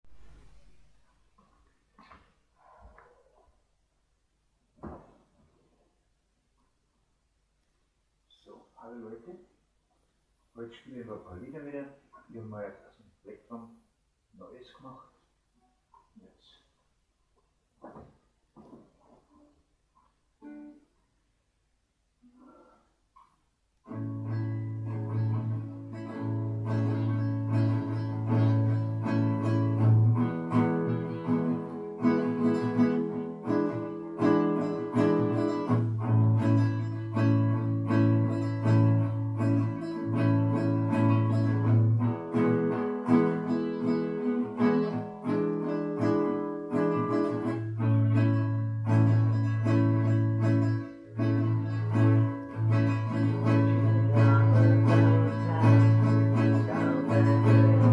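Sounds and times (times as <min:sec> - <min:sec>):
acoustic guitar strumming: 0:23.8 - 0:57.9.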